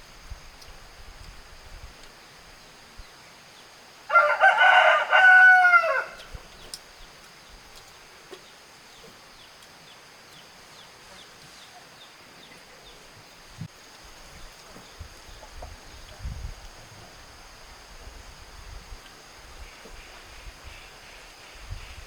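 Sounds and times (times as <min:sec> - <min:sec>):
rooster crowing: 0:04.1 - 0:06.4.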